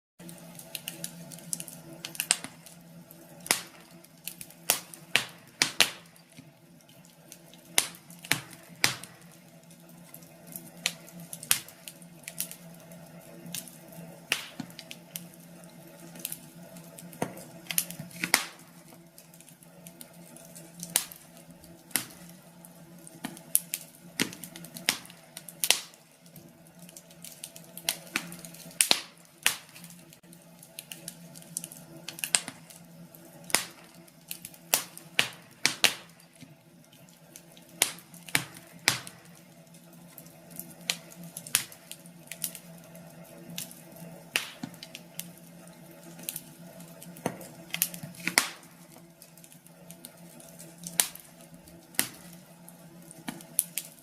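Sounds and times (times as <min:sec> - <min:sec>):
wood fire crackling: 0:00.2 - 0:54.0.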